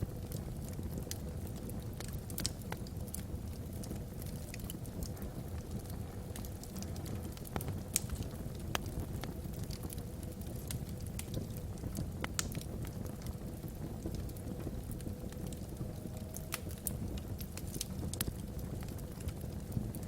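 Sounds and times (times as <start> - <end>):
fire low rumble: 0.0 - 20.0
logs crackling and popping: 0.0 - 20.0.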